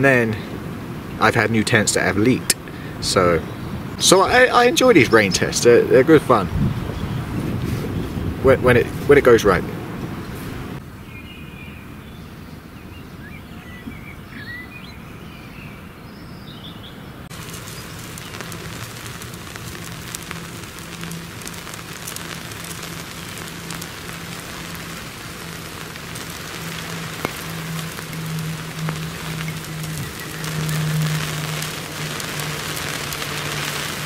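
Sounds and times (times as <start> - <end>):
rain patter: 0.0 - 10.8, 17.3 - 34.0
birds chirping: 1.0 - 5.4, 6.7 - 8.4, 10.2 - 34.0
low steady hum: 17.3 - 34.0.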